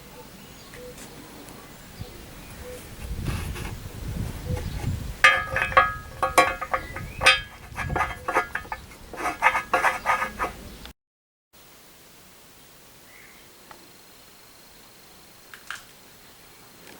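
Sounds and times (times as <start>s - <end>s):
low rumble of handling: 1.0s - 10.9s
metal parts clinking: 5.2s - 10.6s.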